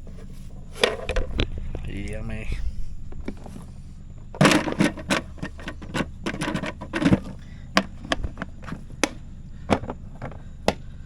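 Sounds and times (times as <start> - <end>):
low steady hum: 0.0 - 11.0
equipment clicks and knocks: 4.4 - 10.8.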